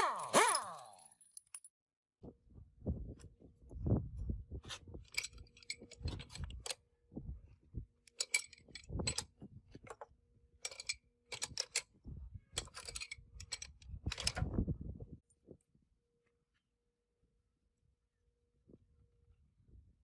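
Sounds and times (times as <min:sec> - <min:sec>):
metal parts clinking: 0:00.0 - 0:01.7, 0:05.0 - 0:06.8, 0:08.0 - 0:14.6.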